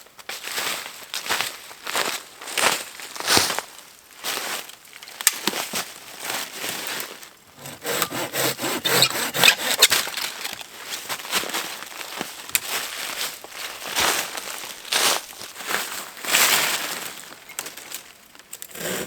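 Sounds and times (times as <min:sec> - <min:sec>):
hand saw rasping through wood: 0:07.6 - 0:10.4, 0:18.7 - 0:19.0.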